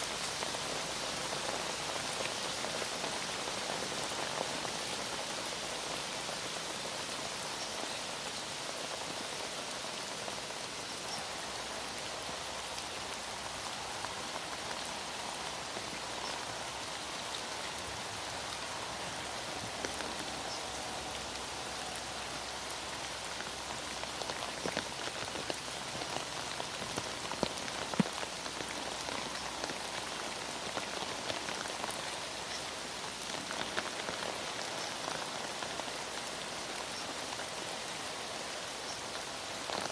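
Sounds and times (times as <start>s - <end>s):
heavy rain falling: 0.0s - 39.9s
ticks of single raindrops: 22.2s - 37.8s.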